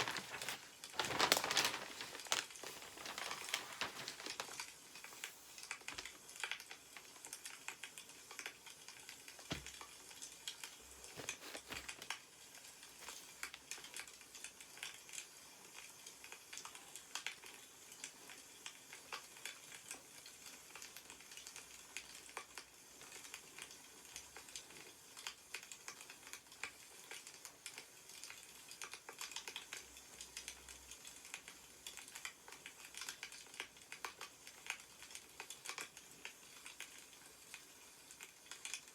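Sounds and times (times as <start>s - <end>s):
firewood crackling: 0.0s - 6.1s
soft thumps: 9.5s - 9.8s.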